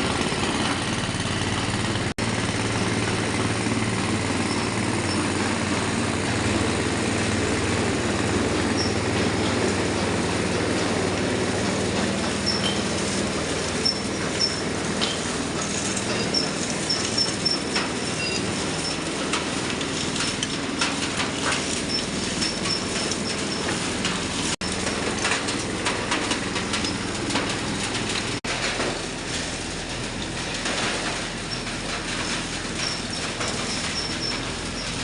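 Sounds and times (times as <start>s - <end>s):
machine rattling and clicking: 0.1s - 35.0s
thin high squeak: 12.4s - 13.1s, 16.0s - 19.0s.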